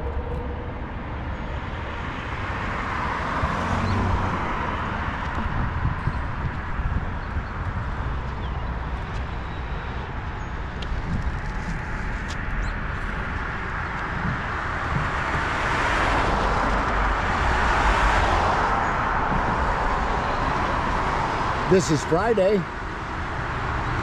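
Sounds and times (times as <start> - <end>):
wind rumbling on microphone: 0.0 - 21.7
road traffic: 0.0 - 24.0
car tyre noise: 10.8 - 24.0.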